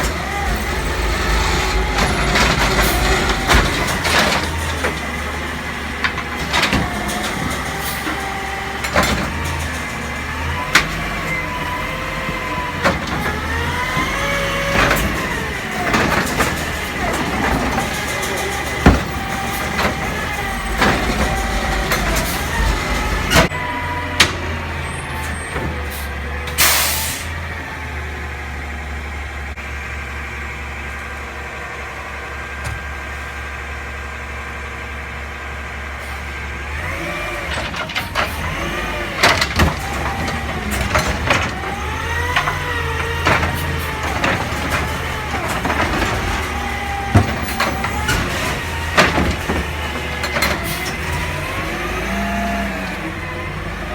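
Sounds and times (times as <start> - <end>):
garbage truck engine revving: 0.0 - 53.9
air brake hiss: 26.6 - 27.3.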